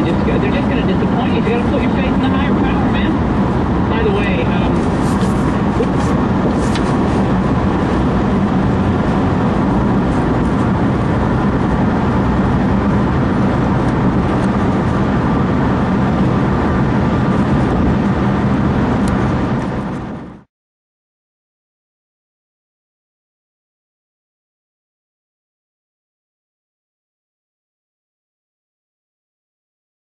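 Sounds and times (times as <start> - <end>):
road and engine noise in cabin: 0.0 - 20.5.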